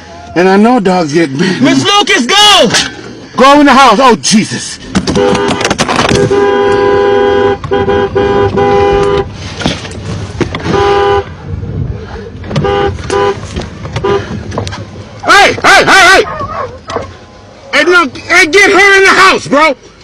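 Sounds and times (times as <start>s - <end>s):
car horn honking: 5.0s - 9.4s, 10.6s - 11.4s, 12.5s - 14.4s.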